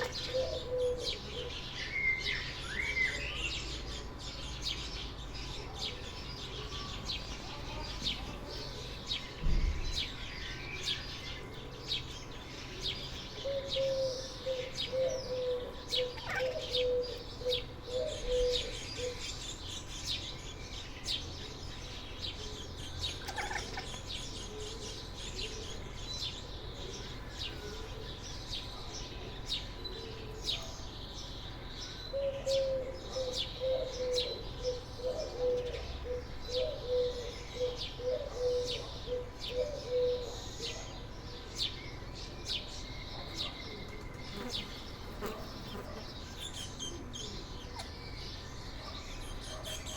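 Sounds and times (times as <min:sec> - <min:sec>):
small birds chirping: 0:00.0 - 0:49.9
cat chattering: 0:16.1 - 0:16.8, 0:23.2 - 0:23.9.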